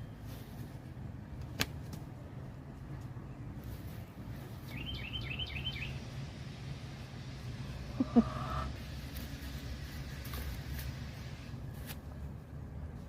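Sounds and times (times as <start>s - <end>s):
low outdoor rumble: 0.0s - 13.0s
songbird chirping: 2.8s - 8.7s.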